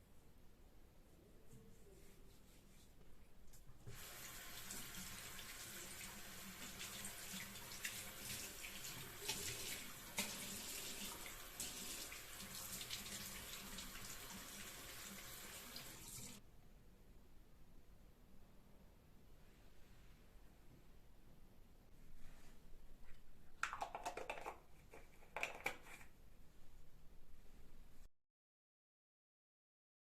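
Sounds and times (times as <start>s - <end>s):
tap water running into sink: 3.9s - 16.4s.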